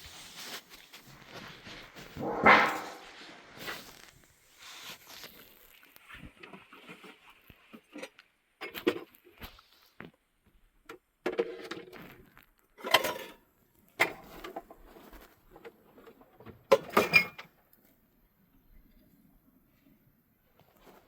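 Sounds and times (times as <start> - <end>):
objects knocking and clattering: 1.7 - 3.3.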